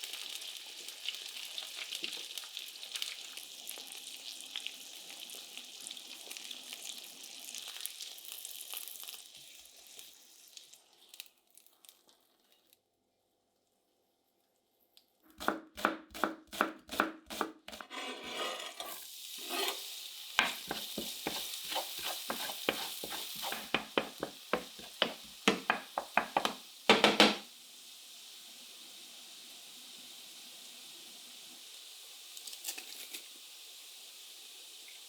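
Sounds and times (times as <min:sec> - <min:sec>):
food sizzling in a hot pan: 0:00.0 - 0:14.0, 0:15.4 - 0:35.0
utensil clinking against a dish: 0:20.4 - 0:27.4
spoon stirring and tapping pan: 0:20.4 - 0:27.5.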